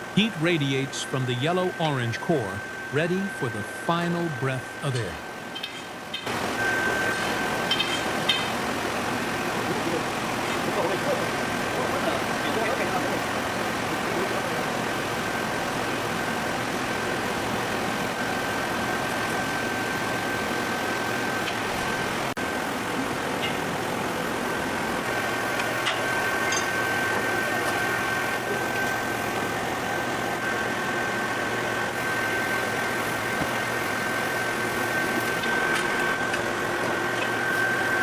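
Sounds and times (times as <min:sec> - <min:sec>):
high-pitched whine: 0:00.0 - 0:10.0.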